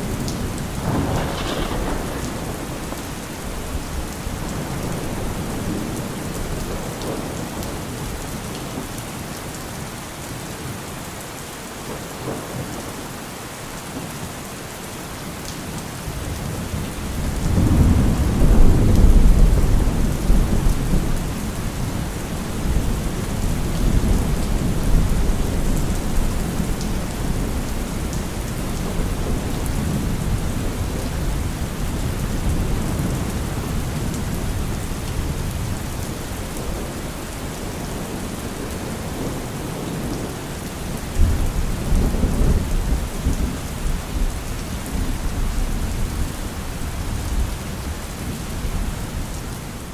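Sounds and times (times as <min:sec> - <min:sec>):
thunder rumbling: 0:00.0 - 0:07.5, 0:16.3 - 0:46.4
heavy rain: 0:00.0 - 0:49.9.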